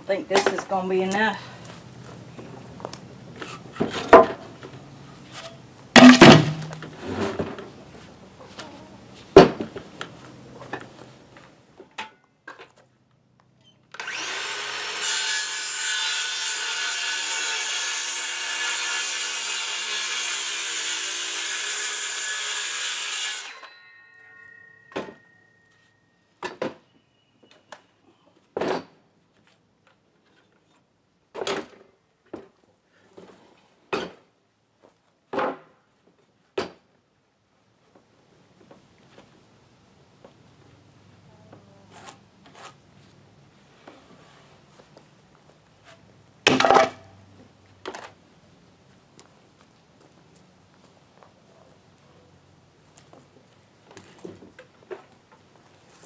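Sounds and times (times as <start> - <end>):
power saw cutting wood: 14.0 - 23.7.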